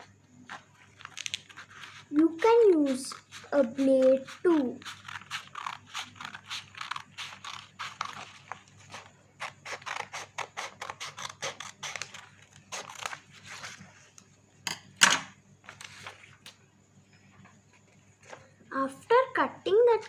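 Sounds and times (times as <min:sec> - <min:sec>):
scissors snipping paper: 0:00.5 - 0:13.8.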